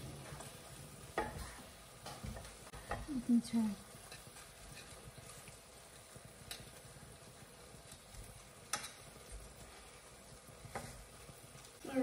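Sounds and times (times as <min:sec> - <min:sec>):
food sizzling in a pan: 0:00.0 - 0:12.0
utensil clicking against pan: 0:06.4 - 0:06.8, 0:07.8 - 0:09.4.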